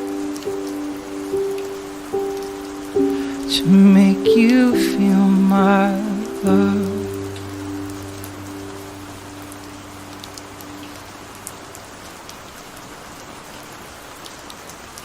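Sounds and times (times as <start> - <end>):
song held notes: 0.0 - 12.0
steady rain hissing: 0.0 - 15.0.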